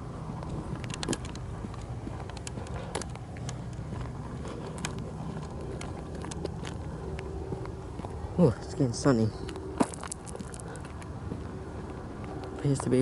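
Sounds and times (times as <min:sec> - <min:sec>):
footsteps crunching on rough ground: 0:00.0 - 0:13.0
steady low rumble: 0:00.0 - 0:13.0
sharp clicks: 0:00.4 - 0:03.9.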